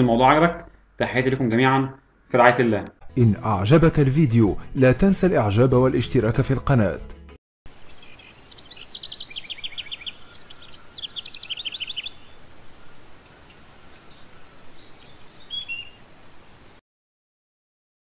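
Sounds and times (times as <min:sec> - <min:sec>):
small birds chirping: 0:07.7 - 0:16.8.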